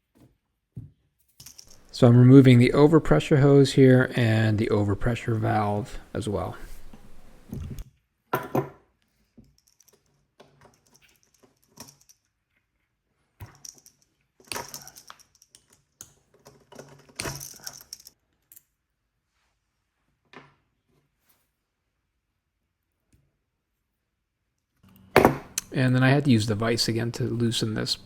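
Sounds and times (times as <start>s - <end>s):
tools and metal parts clinking: 1.4s - 2.0s, 9.4s - 12.3s, 13.4s - 18.8s.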